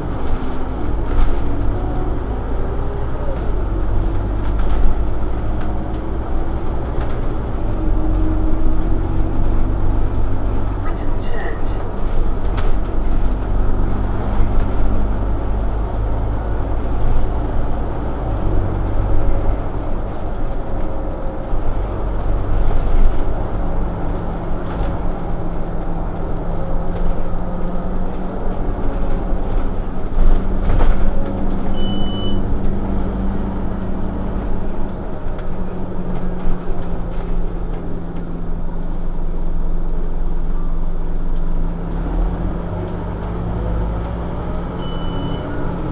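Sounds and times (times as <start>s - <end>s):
bus diesel engine hum: 0.0s - 45.9s
road rumble: 0.0s - 45.9s
short high beep: 31.8s - 32.4s, 44.8s - 45.5s.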